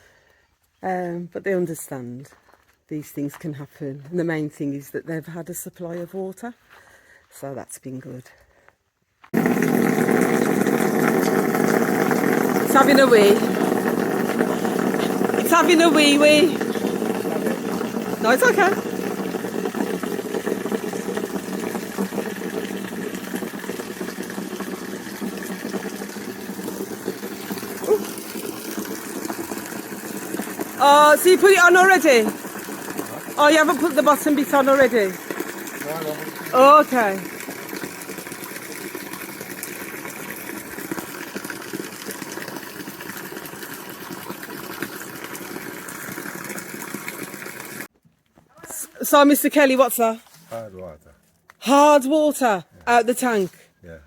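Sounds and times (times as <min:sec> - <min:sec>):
water pouring in a steady stream: 0:09.4 - 0:47.9.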